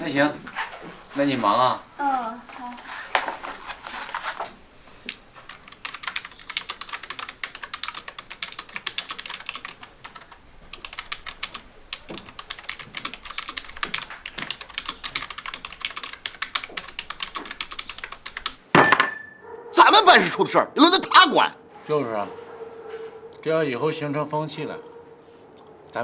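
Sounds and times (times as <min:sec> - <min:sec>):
rapid keyboard typing: 0:05.1 - 0:18.6.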